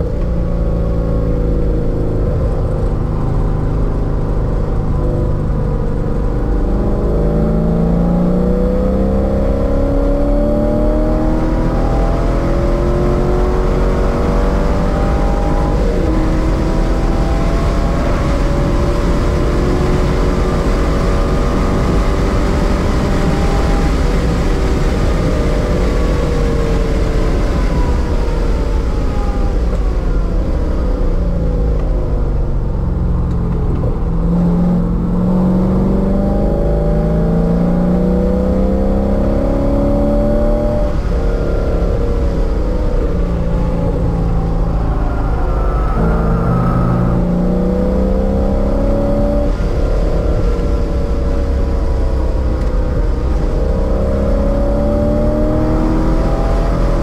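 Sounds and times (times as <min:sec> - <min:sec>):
car engine accelerating: 0:00.0 - 0:57.0
wind and road noise: 0:00.0 - 0:57.0.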